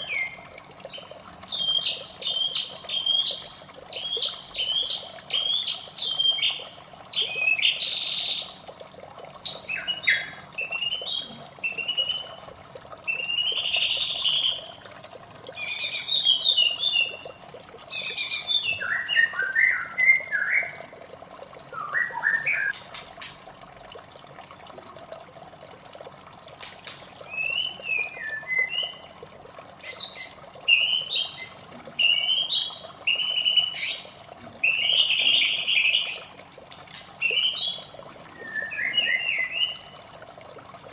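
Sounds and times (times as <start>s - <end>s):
running water: 0.0s - 40.9s
bird singing whistled phrases: 9.5s - 12.4s, 18.0s - 20.8s, 21.7s - 22.8s, 27.3s - 29.0s, 29.9s - 36.2s, 37.2s - 40.0s.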